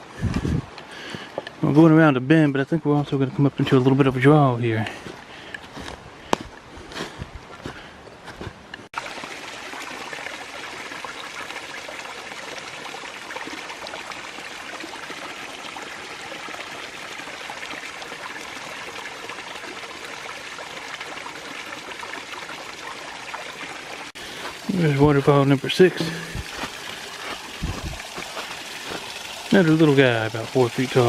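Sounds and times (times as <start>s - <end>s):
small waterfall rushing: 9.0s - 31.0s.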